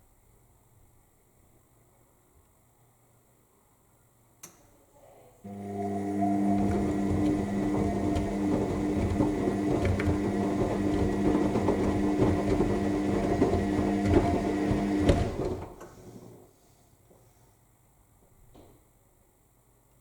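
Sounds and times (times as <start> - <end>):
washing machine motor hum: 5.5 - 15.8.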